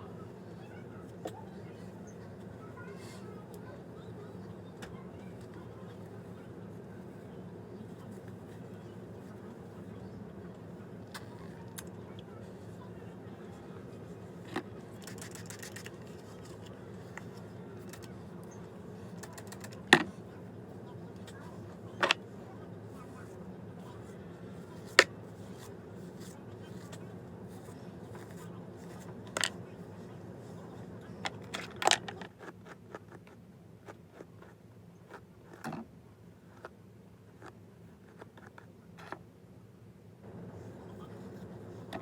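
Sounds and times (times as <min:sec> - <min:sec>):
low background hum: 0:00.0 - 0:42.0.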